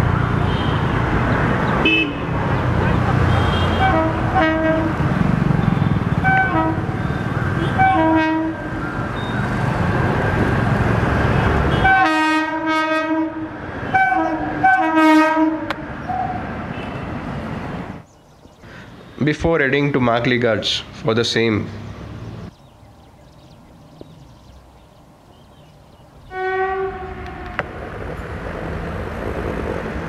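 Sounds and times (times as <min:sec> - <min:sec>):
locomotive horn toots: 0:01.8 - 0:02.3, 0:03.2 - 0:05.0, 0:05.6 - 0:09.3, 0:11.3 - 0:17.2, 0:26.3 - 0:27.6
rumble of running train: 0:03.8 - 0:16.7, 0:26.2 - 0:30.0.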